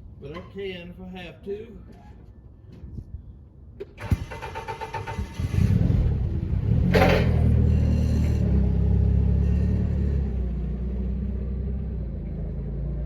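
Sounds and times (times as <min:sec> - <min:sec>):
engine starting and running: 0:03.8 - 0:11.2.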